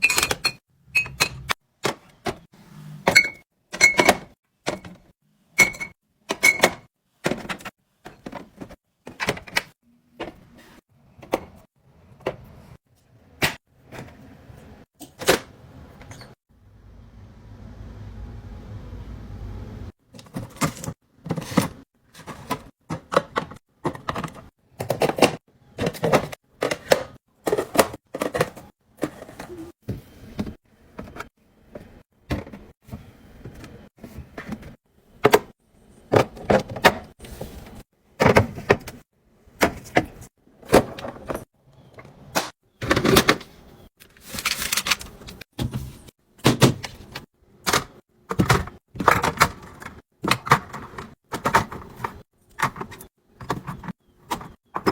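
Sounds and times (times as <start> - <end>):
containers clattering: 20.2 - 29.8.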